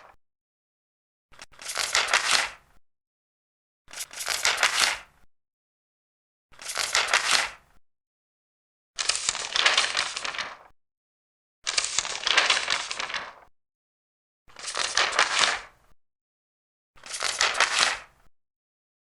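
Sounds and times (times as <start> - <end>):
paper pages turning: 1.4 - 2.6, 3.9 - 5.1, 6.6 - 7.6, 9.0 - 10.7, 11.7 - 13.4, 14.5 - 15.7, 17.0 - 18.1.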